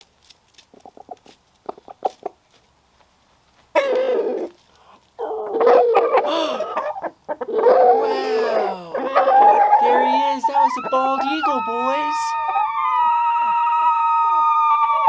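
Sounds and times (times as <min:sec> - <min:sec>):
roosters clucking: 0:03.8 - 0:04.6, 0:05.2 - 0:12.7
roosters screeching alarm calls: 0:05.9 - 0:14.2.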